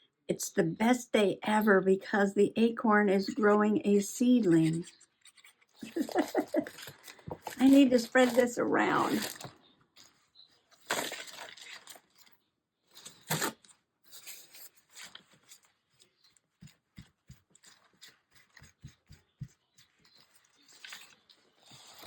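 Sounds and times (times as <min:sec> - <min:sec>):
paper rustling: 0:04.5 - 0:22.0.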